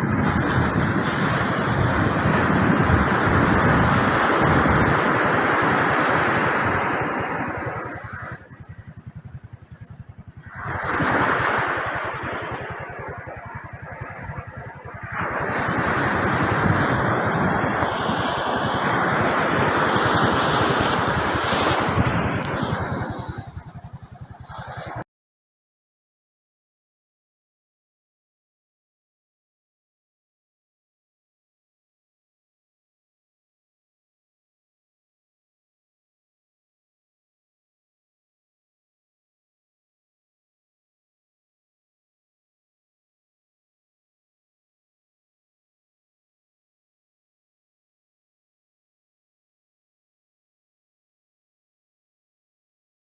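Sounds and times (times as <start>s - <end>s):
surf breaking on beach: 0.0s - 25.0s.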